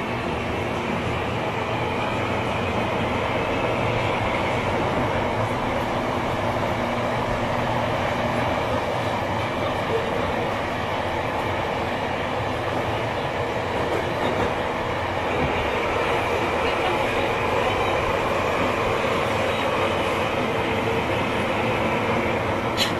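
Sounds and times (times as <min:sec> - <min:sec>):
train rail and tunnel noise: 0:00.0 - 0:22.9.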